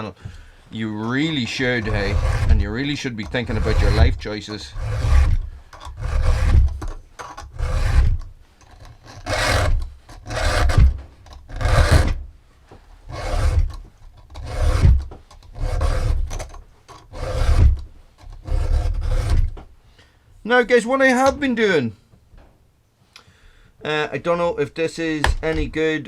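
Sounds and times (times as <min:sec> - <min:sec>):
file rasping on chainsaw chain: 0:01.0 - 0:12.1, 0:13.1 - 0:19.5.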